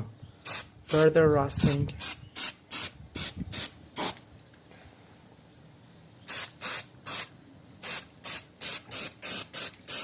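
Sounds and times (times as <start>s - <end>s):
aerosol spray can hissing: 0.5s - 4.2s, 6.3s - 10.0s.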